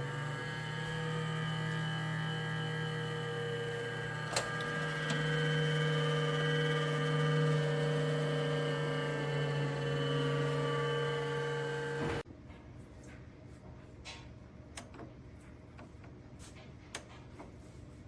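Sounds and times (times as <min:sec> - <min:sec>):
convection fan humming: 0:00.0 - 0:12.2.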